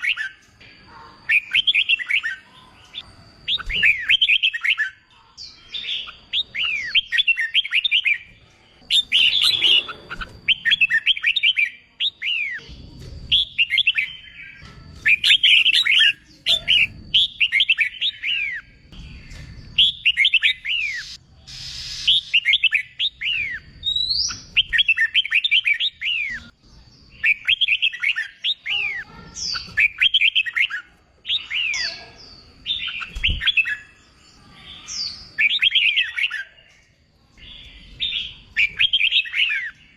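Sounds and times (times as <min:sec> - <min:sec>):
bird singing chirpy phrases: 0:01.2 - 0:39.9.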